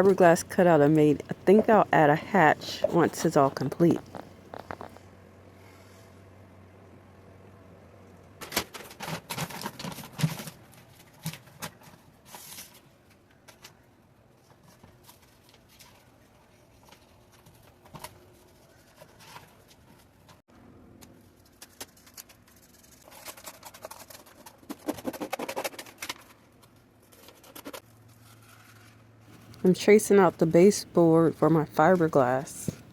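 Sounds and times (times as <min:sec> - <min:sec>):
hand-work scraping and rustling: 0:00.0 - 0:05.0, 0:27.0 - 0:29.7.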